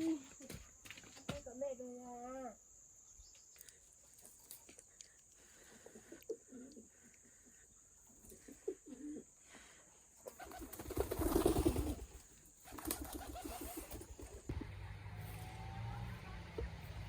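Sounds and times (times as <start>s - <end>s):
bird cooing: 8.2s - 9.3s.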